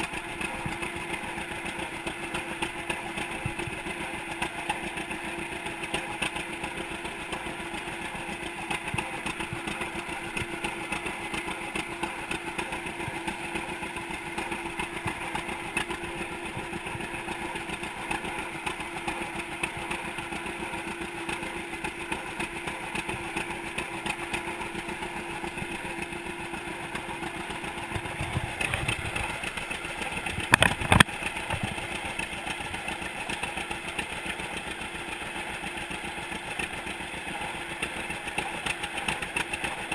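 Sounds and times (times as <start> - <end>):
tractor engine running: 0.0 - 39.9
sharp engine knocks: 27.7 - 32.8.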